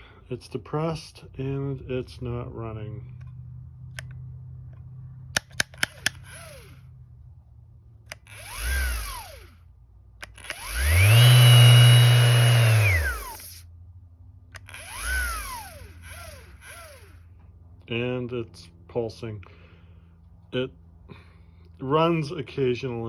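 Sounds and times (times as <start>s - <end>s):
sharp clicks: 5.4s - 6.6s, 8.1s - 9.3s, 10.2s - 13.6s
orbital sander motor pulsing: 5.8s - 6.8s, 8.1s - 9.6s, 10.2s - 13.6s, 14.6s - 17.3s.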